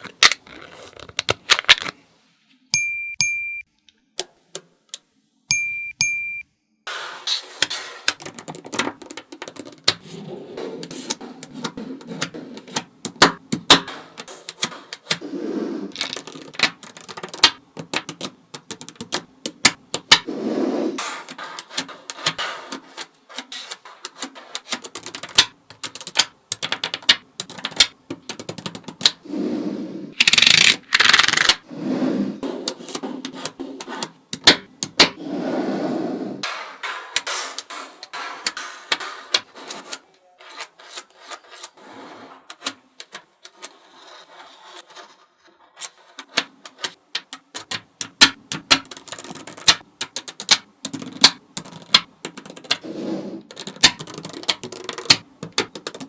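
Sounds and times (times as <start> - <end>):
balls rattling: 8.1 - 10.0, 15.9 - 20.2
magnetic balls clicking together: 8.1 - 10.0, 15.9 - 20.3, 24.0 - 29.2, 30.2 - 31.6, 46.3 - 52.8, 53.5 - 56.0.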